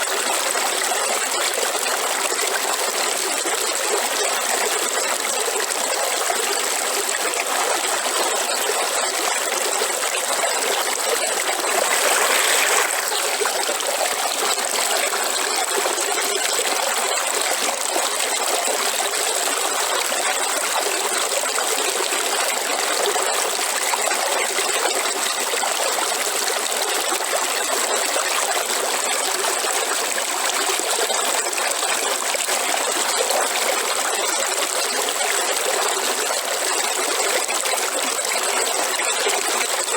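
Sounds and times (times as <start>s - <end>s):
river water flowing: 9.6s - 22.4s.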